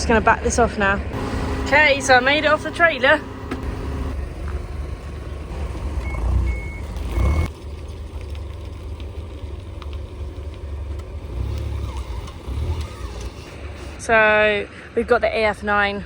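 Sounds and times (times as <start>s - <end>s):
harvester engine rumbling: 0.0s - 16.0s
reverse alarm beeps: 6.0s - 7.5s.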